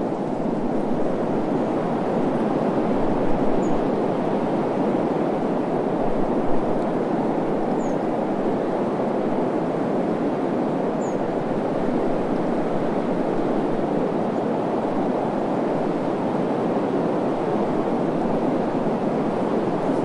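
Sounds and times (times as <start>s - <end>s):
desert wind rushing: 0.0s - 20.0s.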